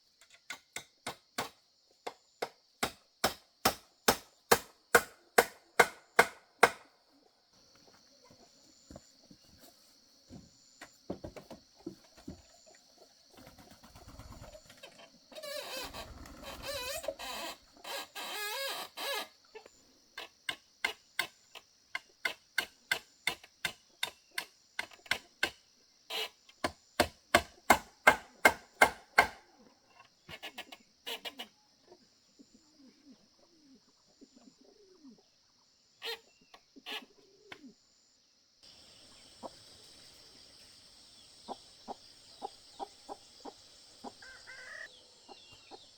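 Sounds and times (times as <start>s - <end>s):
hammer driving nails into wood: 2.8s - 6.8s, 27.4s - 29.4s.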